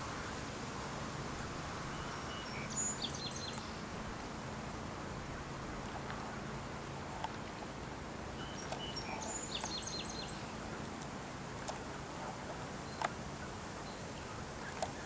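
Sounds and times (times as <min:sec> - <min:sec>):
faint sharp clicks: 0:07.2 - 0:07.6, 0:08.6 - 0:09.8, 0:10.8 - 0:12.0, 0:12.9 - 0:13.2, 0:14.6 - 0:15.0.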